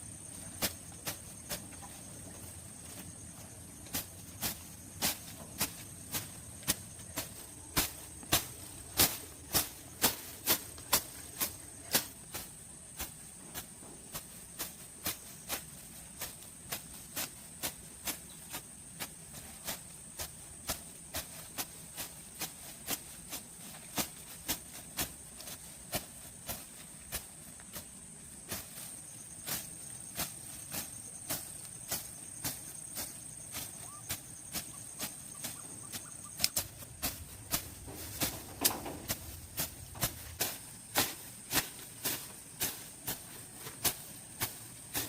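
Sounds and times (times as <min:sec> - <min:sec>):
insects droning: 0:00.0 - 0:45.0.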